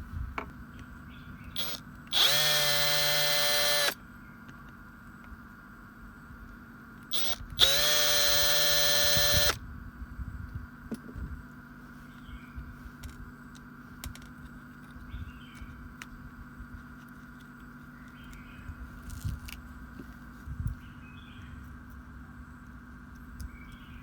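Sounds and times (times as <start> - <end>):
power tool motor whining: 1.6 - 4.0, 7.1 - 9.6.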